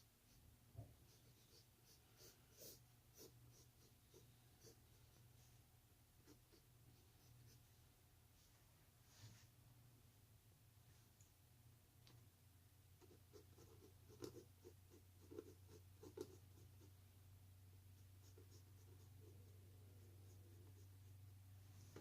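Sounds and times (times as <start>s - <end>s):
pencil scratching on paper: 1.0s - 5.6s, 6.2s - 7.7s, 13.0s - 17.0s, 18.0s - 21.2s.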